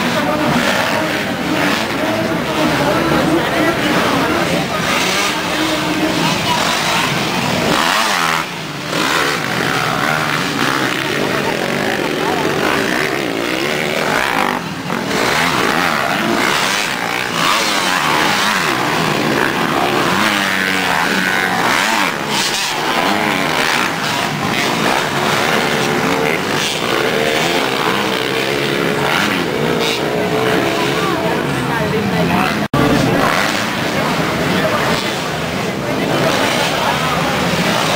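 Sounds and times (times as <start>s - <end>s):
motocross bike engines revving: 0.0s - 37.9s.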